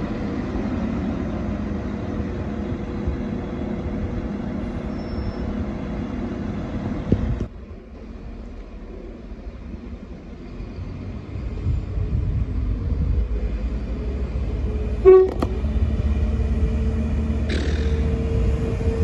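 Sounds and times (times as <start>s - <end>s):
train engine rumbling: 0.0s - 19.0s
train horn toot: 15.0s - 15.6s.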